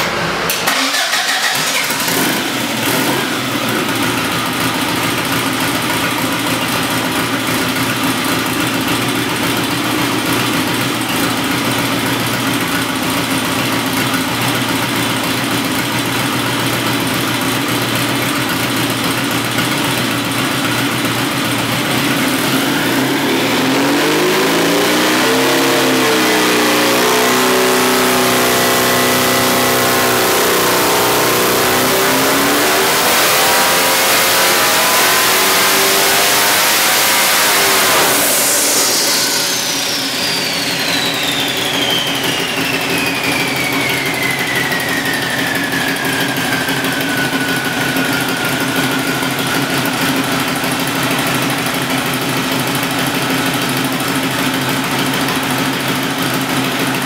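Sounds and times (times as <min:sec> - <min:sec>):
car engine idling: 0:00.0 - 0:24.2, 0:25.6 - 0:57.0.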